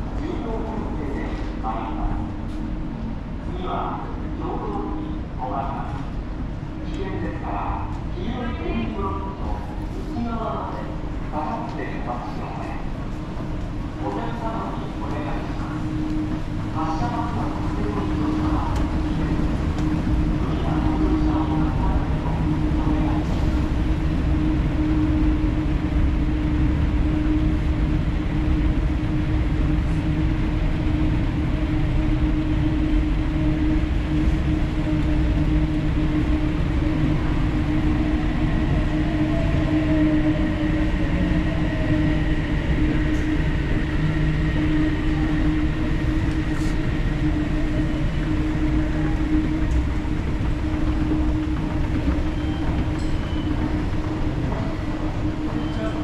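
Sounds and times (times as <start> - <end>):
electric train rumbling: 0.0 - 56.0
faint whine shifting in pitch: 11.4 - 56.0.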